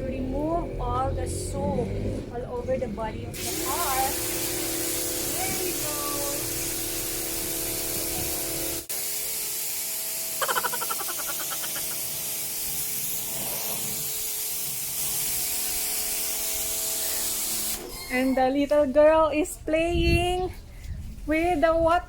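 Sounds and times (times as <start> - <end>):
pressure washer spraying water: 3.4 - 17.8.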